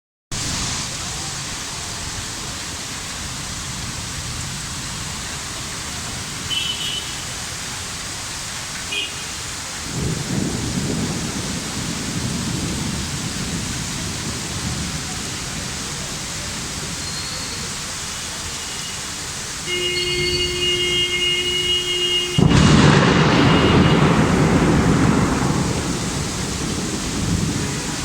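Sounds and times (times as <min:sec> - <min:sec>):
heavy rain falling: 0:00.3 - 0:28.0.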